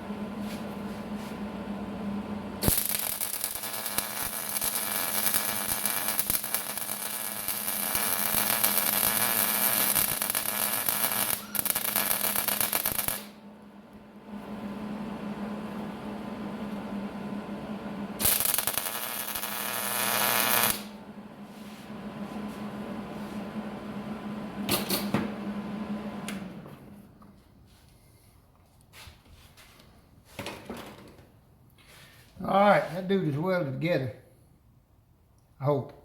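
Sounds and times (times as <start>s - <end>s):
steady hum: 0.0s - 28.6s
arc welding crackling sizzle: 2.6s - 13.4s, 18.2s - 21.0s.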